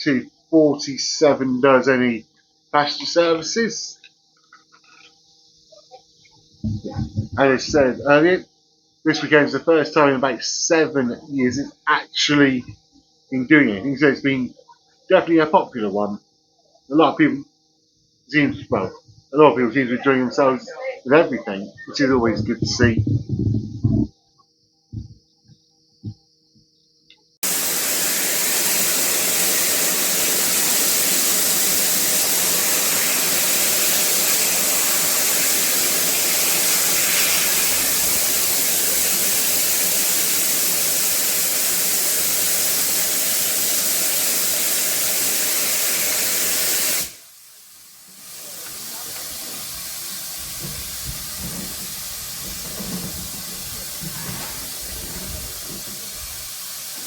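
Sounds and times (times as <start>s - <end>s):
low knocks: 6.6s - 7.8s, 24.9s - 25.2s
steam locomotive hissing: 27.4s - 57.0s.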